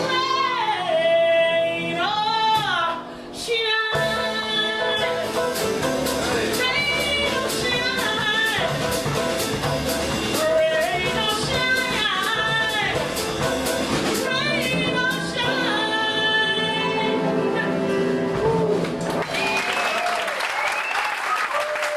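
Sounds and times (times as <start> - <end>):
small band playing: 0.0 - 3.0, 3.9 - 21.9
woman singing jazz: 0.0 - 18.9
applause: 19.0 - 21.9.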